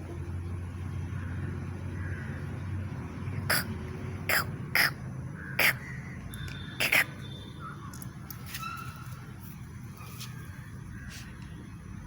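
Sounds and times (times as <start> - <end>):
harsh rasping animal calls: 3.4 - 6.0, 6.8 - 7.2.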